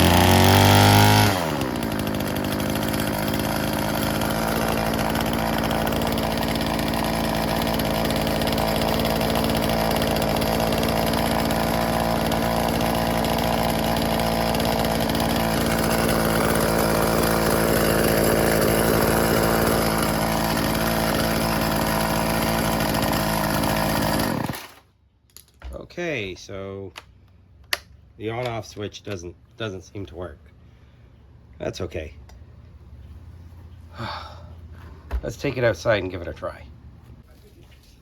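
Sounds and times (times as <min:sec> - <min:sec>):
string trimmer engine idling: 0:00.0 - 0:24.8.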